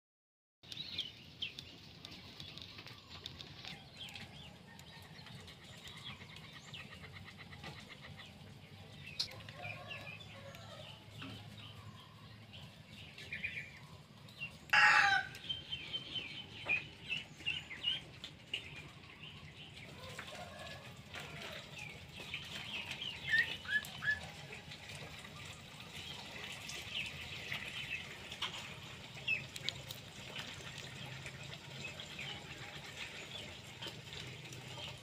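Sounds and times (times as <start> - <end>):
birds chirping: 0.6 - 20.6.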